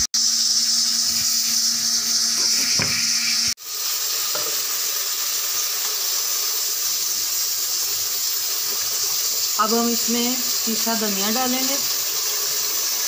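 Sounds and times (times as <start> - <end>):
gravy sizzling and bubbling: 3.5 - 13.0.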